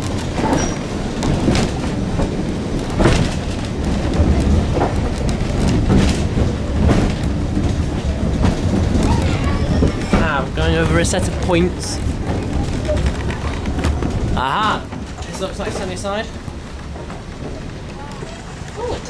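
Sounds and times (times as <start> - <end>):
train knocks and clanks: 0.0 - 19.0
train wheels rumbling on rails: 0.0 - 19.0.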